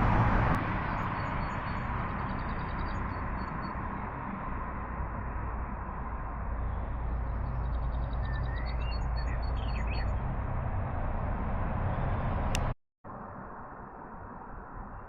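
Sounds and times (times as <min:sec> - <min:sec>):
steady low rumble: 0:00.0 - 0:00.9
bird chirping: 0:07.1 - 0:10.2.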